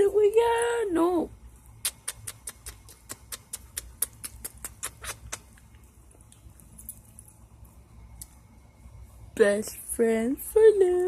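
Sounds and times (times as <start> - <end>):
dog making sharp clicks: 1.8 - 5.7.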